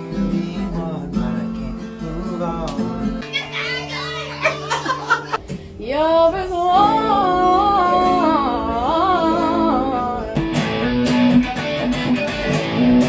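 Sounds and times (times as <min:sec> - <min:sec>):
guitar strumming: 0:00.0 - 0:13.0
person singing: 0:00.2 - 0:10.6.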